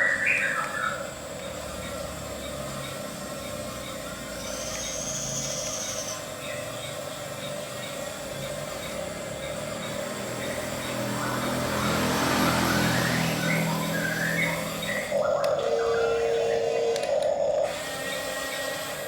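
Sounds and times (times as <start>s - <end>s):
model bulldozer mechanical hum: 0.0s - 19.0s.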